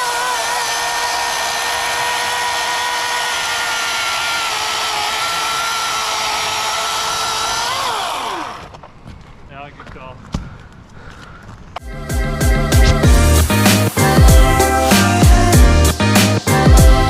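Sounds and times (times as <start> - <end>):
electric chainsaw whining: 0.0 - 8.8.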